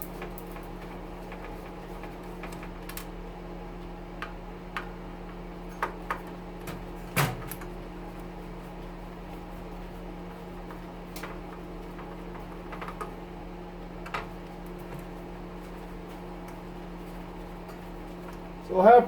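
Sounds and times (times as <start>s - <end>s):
metal oven parts clicking: 4.2s - 7.7s.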